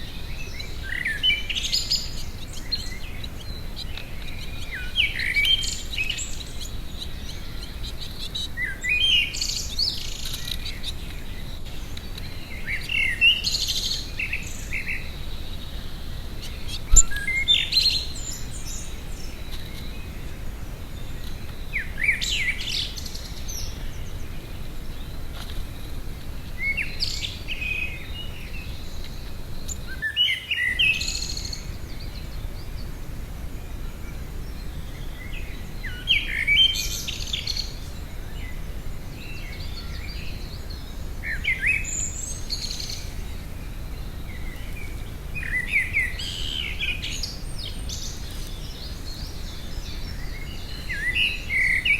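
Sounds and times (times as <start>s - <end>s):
birds chirping: 0.0s - 51.9s
low background rumble: 31.0s - 50.8s.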